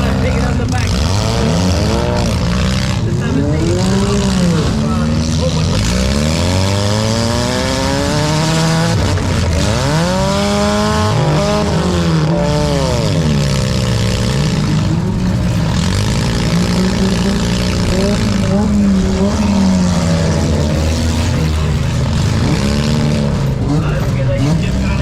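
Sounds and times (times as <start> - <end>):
car engines revving: 0.0 - 25.0
steady loud din: 0.0 - 25.0.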